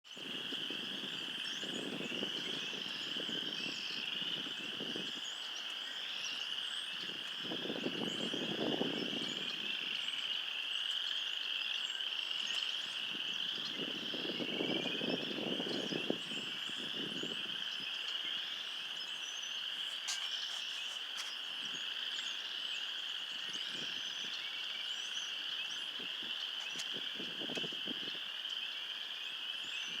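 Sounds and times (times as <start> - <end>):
frog chorus peeping: 0.1 - 30.0.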